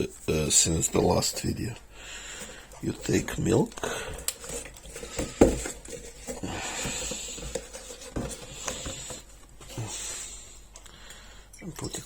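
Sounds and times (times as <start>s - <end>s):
scratchy rustling: 2.4s - 10.1s.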